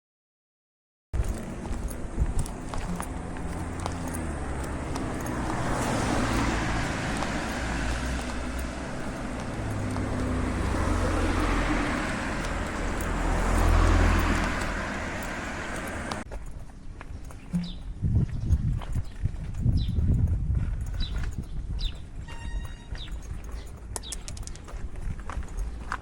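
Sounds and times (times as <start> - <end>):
cars passing on road: 1.2 - 16.3, 19.6 - 26.0.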